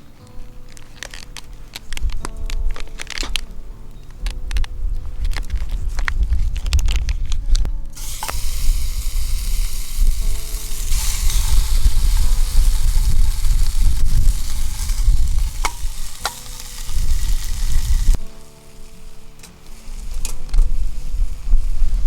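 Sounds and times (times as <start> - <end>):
low rumble: 4.3 - 18.2
meat sizzling in a skillet: 8.0 - 19.0.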